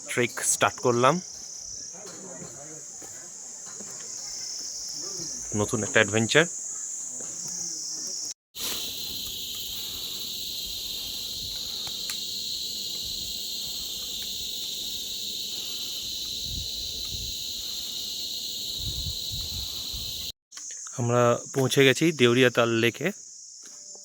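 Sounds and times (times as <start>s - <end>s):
insects shrilling: 0.0s - 24.0s.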